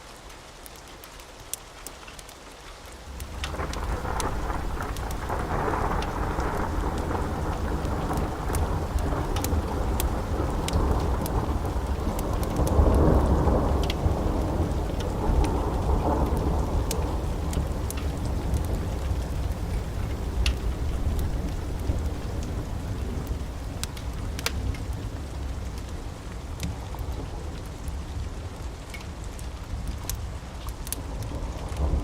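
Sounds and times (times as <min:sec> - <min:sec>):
steady rain: 0:00.0 - 0:32.0
wood fire crackling: 0:00.0 - 0:32.0
rolling thunder: 0:03.2 - 0:26.1.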